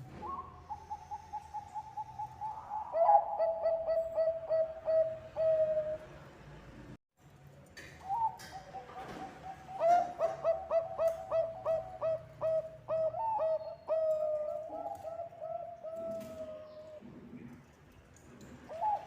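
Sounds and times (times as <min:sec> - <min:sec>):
dove cooing: 0:00.1 - 0:06.1, 0:08.1 - 0:17.0, 0:18.7 - 0:19.0.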